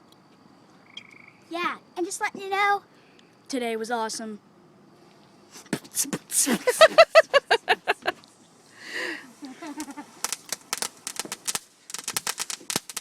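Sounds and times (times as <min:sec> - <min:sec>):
fireworks crackling and popping: 0:09.0 - 0:13.0.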